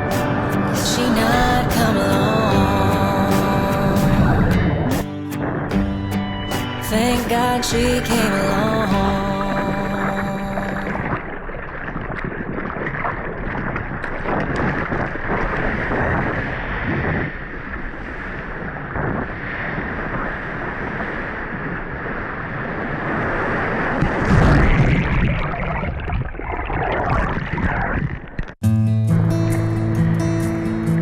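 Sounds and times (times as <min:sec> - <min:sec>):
ocean surf washing: 0:00.0 - 0:24.8
wind buffeting microphone: 0:08.7 - 0:28.3.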